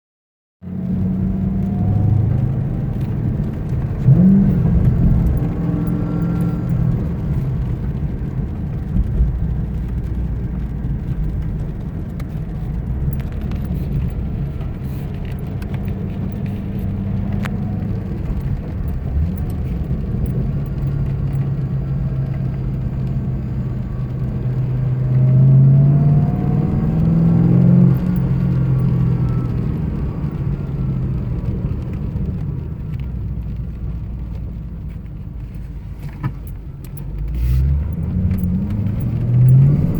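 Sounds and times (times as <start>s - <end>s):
car engine idling and revving: 0.6s - 39.9s.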